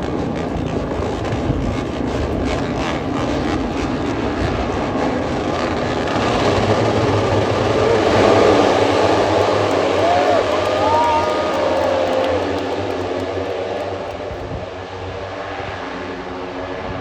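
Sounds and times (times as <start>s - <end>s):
motorcycles changing gear passing: 7.1s - 14.4s.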